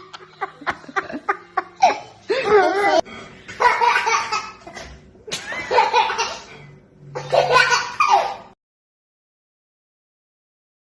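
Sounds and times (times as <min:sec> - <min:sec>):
baby giggling: 0:07.2 - 0:08.5.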